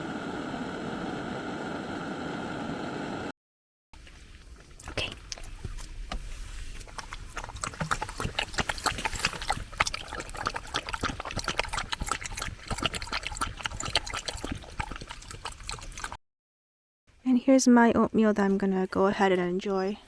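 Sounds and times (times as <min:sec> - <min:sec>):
dog chewing and slurping food: 0:04.0 - 0:16.2.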